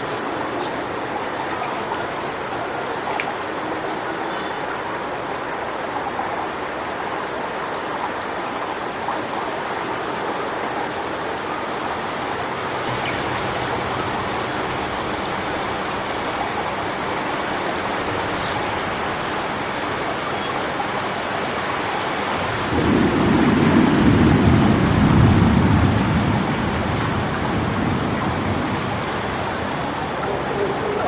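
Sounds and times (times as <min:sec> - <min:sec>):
wind rushing through palm fronds: 0:00.0 - 0:31.0
low rumble of thunder: 0:22.4 - 0:31.0.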